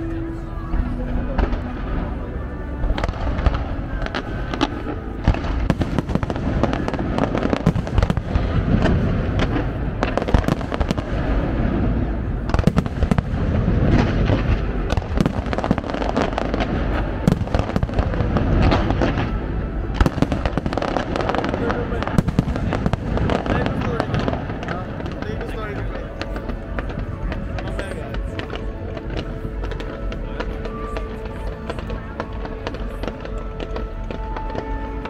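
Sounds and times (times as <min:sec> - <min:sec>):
continuous low rumble: 0:00.0 - 0:35.0
fireworks bangs and crackles: 0:00.0 - 0:35.0.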